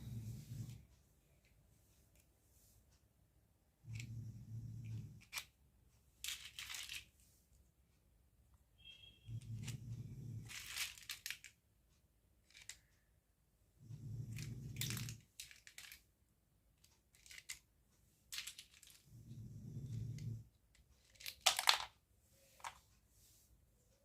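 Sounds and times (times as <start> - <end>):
plastic pieces clicking: 6.2 - 7.1, 10.4 - 11.6, 12.4 - 12.9, 14.7 - 16.1, 16.8 - 17.7, 18.3 - 19.0, 20.8 - 22.0.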